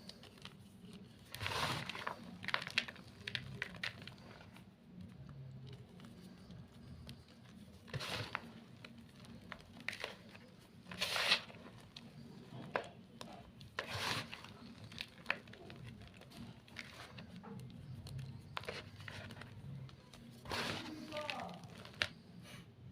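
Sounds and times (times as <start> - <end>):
chalk being crushed: 5.9 - 22.2.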